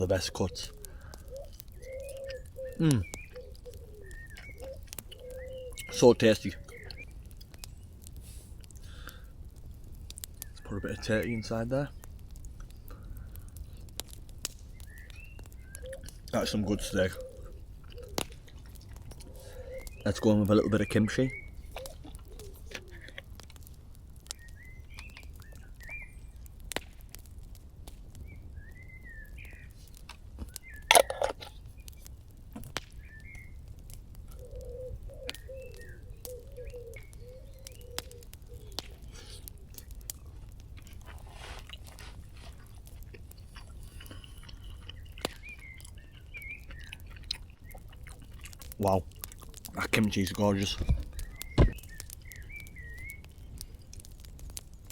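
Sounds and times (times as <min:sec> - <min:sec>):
birds chirping: 0:00.0 - 0:26.8, 0:28.1 - 0:54.9.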